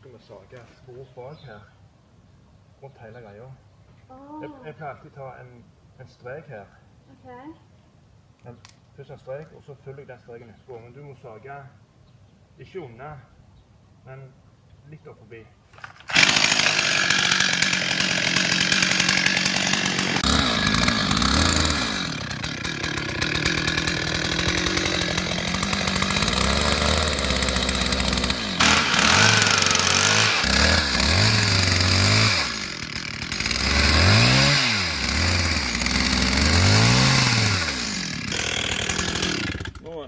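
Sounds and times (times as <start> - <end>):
chainsaw cutting tree trunk: 15.8 - 40.0.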